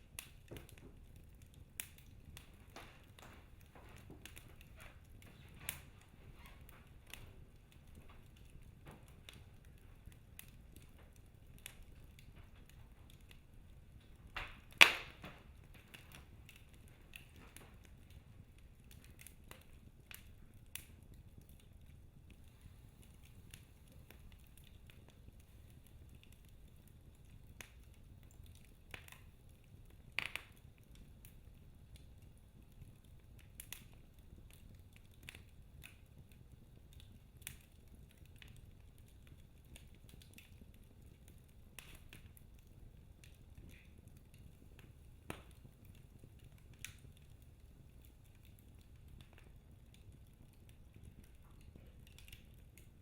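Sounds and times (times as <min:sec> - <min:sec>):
wood fire crackling: 0:00.0 - 0:53.0
loud fire pops: 0:01.6 - 0:29.3, 0:29.9 - 0:32.2.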